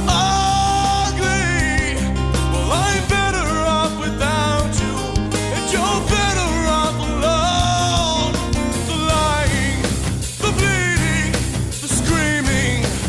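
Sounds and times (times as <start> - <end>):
rock song with singer: 0.0 - 13.0.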